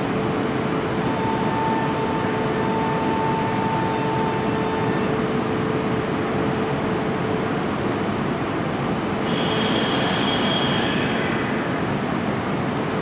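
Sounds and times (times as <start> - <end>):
train equipment humming: 0.0 - 13.0.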